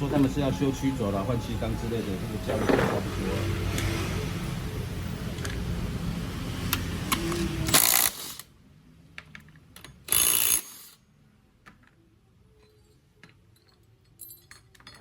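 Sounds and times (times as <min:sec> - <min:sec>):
compressed-air tool bursts: 0:07.3 - 0:08.5, 0:10.1 - 0:11.0
metal parts clicking: 0:12.6 - 0:15.0.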